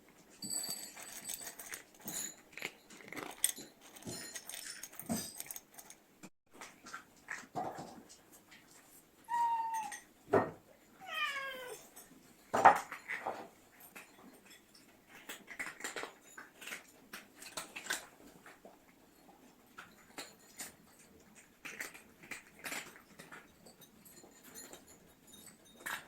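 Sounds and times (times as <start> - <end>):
clicks and knocks of dishes: 6.6 - 8.9, 11.8 - 26.0
cat meowing: 9.3 - 10.0, 11.0 - 11.8.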